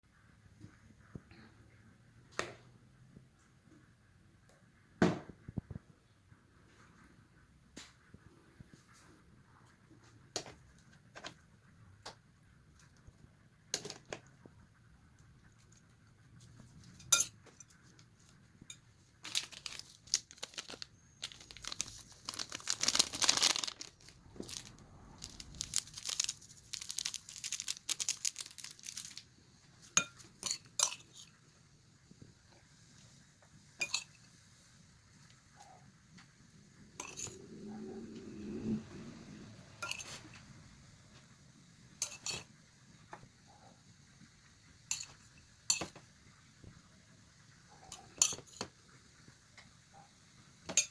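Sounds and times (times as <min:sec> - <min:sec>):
crinkling: 0:15.4 - 0:30.5
objects clicking and clinking: 0:18.7 - 0:29.2.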